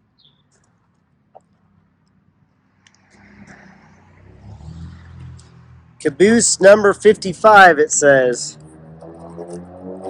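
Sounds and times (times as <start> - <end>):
car passing: 2.5 - 10.0.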